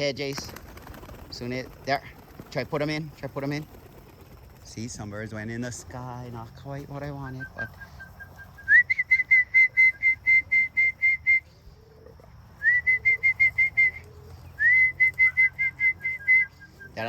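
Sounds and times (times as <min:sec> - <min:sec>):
person whistling: 0:07.3 - 0:11.5, 0:12.6 - 0:14.0, 0:14.6 - 0:16.9.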